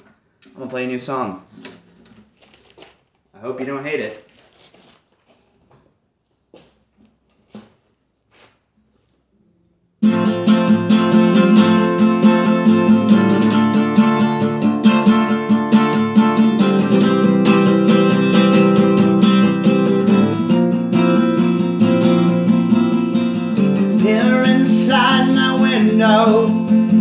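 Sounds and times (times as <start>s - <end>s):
acoustic guitar strumming: 10.0s - 27.0s.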